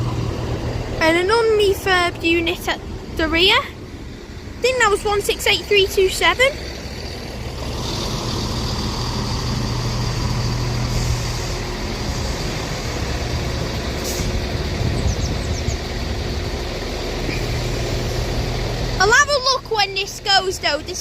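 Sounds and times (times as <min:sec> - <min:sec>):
train diesel engines idling: 0:00.0 - 0:21.0
short air hisses: 0:14.0 - 0:14.4.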